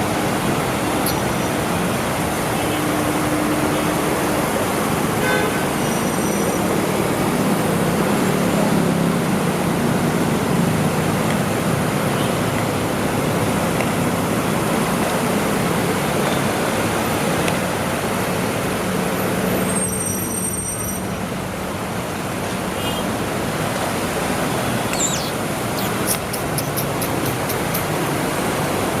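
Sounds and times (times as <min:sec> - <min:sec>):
road noise: 0:00.0 - 0:29.0
vehicle engines running: 0:21.1 - 0:29.0
quick ticks: 0:25.8 - 0:27.9.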